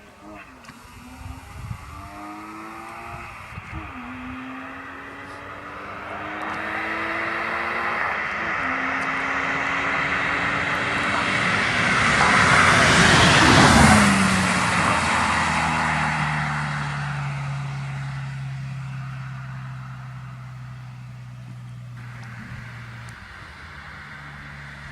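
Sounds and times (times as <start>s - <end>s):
car exhaust driving past: 0.0s - 24.9s.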